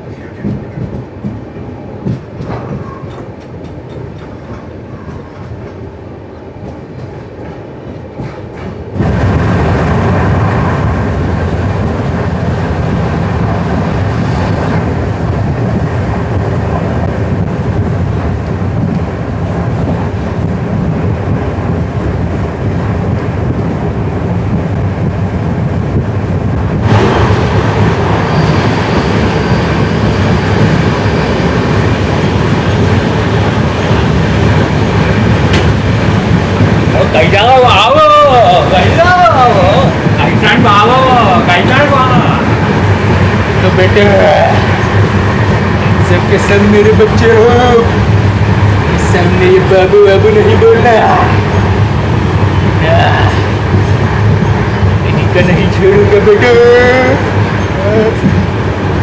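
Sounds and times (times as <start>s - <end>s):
train wheels clattering on rails: 0.0s - 59.0s.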